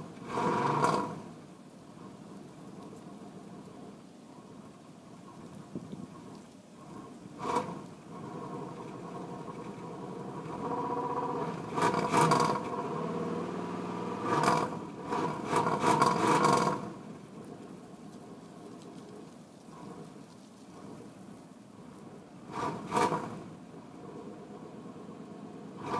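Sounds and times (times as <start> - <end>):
car engine cold start: 0.0 - 1.4, 6.1 - 17.2, 22.4 - 25.9.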